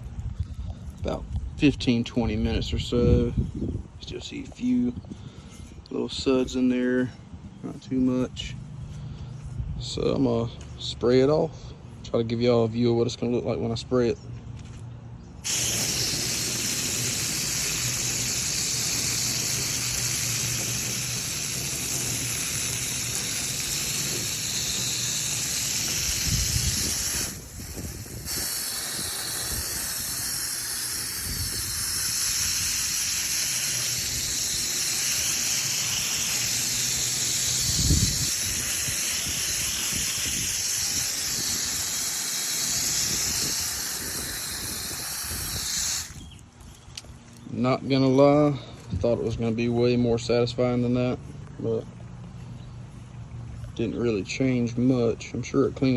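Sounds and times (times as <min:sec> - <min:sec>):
water spraying from hose nozzle: 0:15.4 - 0:46.4.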